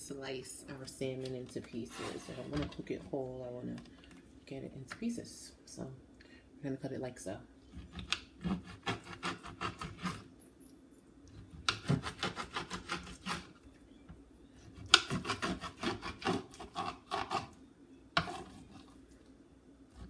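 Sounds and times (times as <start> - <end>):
knife sawing through raw fish: 7.8 - 10.3, 11.4 - 13.5, 14.7 - 17.6, 18.2 - 18.9.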